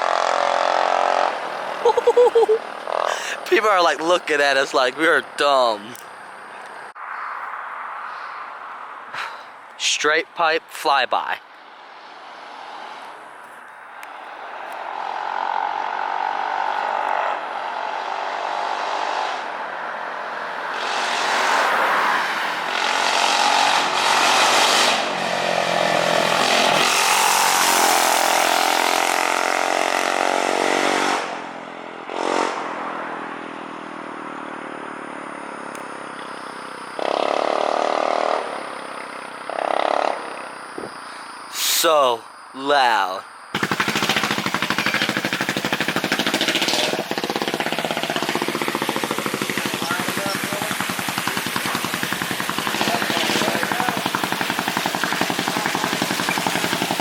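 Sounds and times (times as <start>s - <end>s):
scooter engine passing by: 0.0s - 3.3s, 14.9s - 35.7s, 36.4s - 40.6s, 43.6s - 57.0s.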